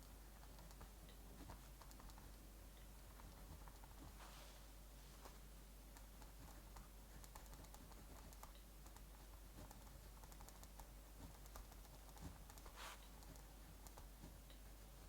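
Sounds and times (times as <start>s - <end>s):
soft hiss: 0.0s - 7.4s, 12.4s - 15.0s
small clicks and crackles: 5.2s - 14.6s.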